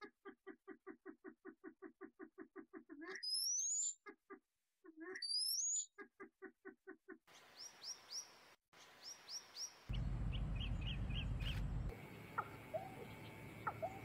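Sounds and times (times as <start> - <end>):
birds chirping: 7.3 - 14.0
low rumble: 9.9 - 11.9.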